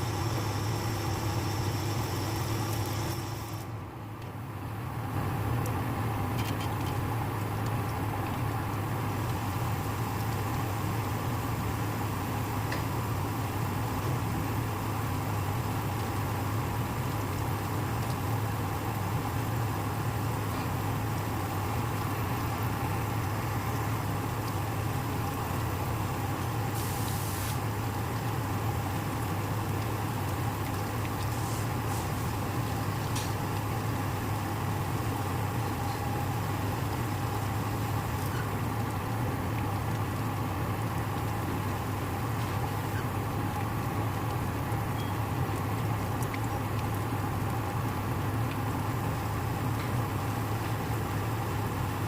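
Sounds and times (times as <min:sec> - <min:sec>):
short hiss: 0:26.8 - 0:27.6.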